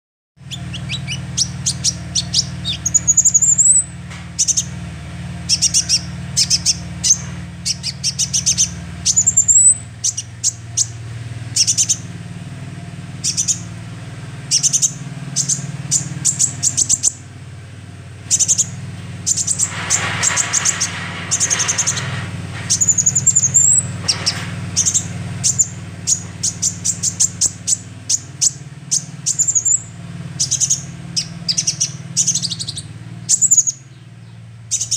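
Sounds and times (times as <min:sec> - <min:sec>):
bird chirps and trills: 0:00.4 - 0:34.9
hissing noise: 0:19.3 - 0:22.8.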